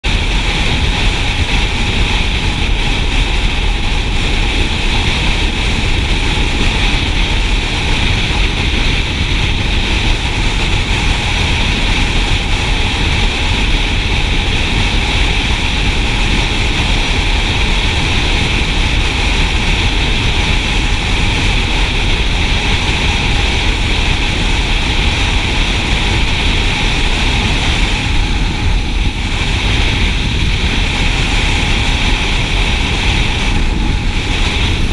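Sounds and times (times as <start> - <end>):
motorcycle cruising: 0.0 - 34.9
wind rushing over microphone: 0.0 - 34.9.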